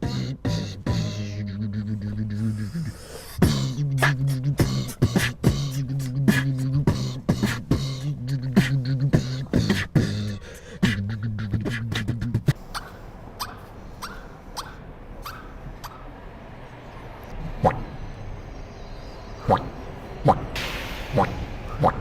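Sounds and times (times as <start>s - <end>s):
beatboxing hummed bass line: 0.0s - 16.1s, 17.4s - 17.9s, 21.2s - 22.0s.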